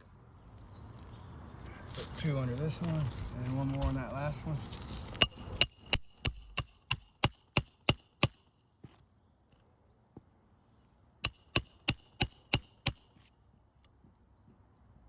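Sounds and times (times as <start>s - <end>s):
hammer driving nails into shingles: 5.1s - 8.5s, 11.2s - 13.2s.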